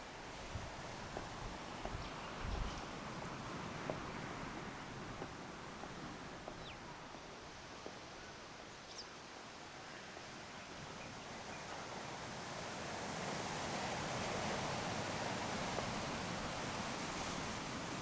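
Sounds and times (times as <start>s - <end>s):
ocean surf washing: 0.0s - 8.1s, 9.6s - 18.0s
faint bird chirps: 8.8s - 9.2s.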